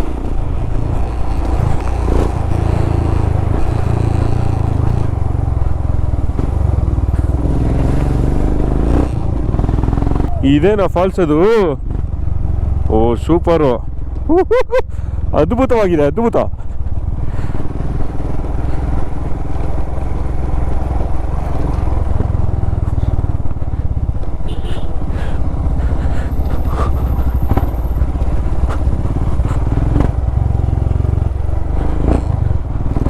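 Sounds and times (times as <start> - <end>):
motorcycle engine running: 0.0 - 33.0
road noise: 0.0 - 33.0.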